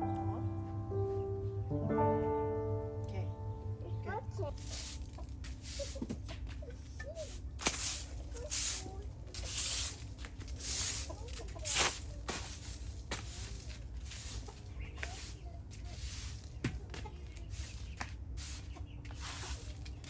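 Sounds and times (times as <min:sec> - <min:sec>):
chickens clucking: 0:04.6 - 0:20.0.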